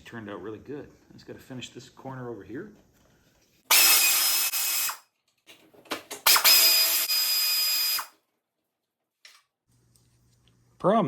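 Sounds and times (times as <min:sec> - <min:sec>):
power tool whining: 0:03.7 - 0:05.0, 0:06.2 - 0:08.1.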